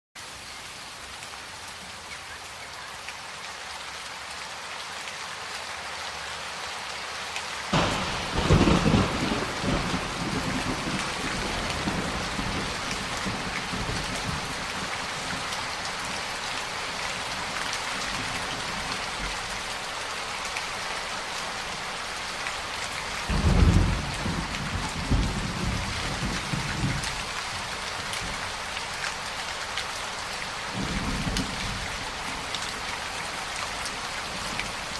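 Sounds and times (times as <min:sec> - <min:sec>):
heavy rain: 0:00.2 - 0:34.9
rolling thunder: 0:07.8 - 0:14.9, 0:23.3 - 0:27.1.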